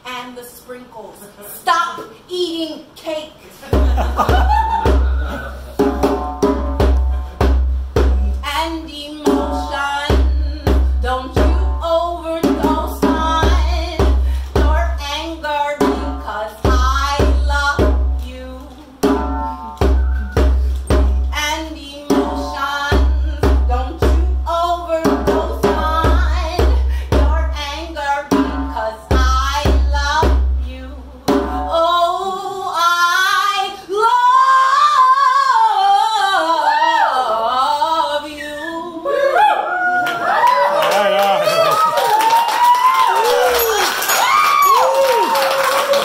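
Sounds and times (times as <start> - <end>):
drum kit beat: 3.6 - 31.8
deep bass pulses: 3.8 - 18.4, 19.0 - 31.8
woman singing wordlessly: 8.4 - 20.0, 21.3 - 39.1.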